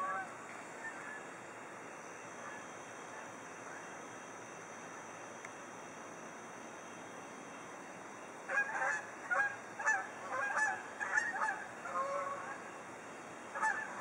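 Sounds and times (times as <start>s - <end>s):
geese honking: 0.0s - 1.3s, 8.5s - 12.7s, 13.5s - 14.0s.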